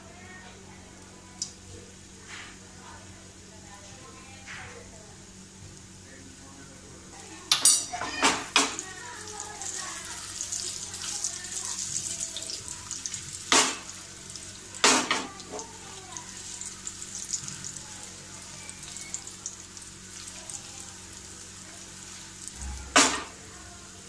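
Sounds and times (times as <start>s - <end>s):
food sizzling in hot oil: 7.2s - 24.0s.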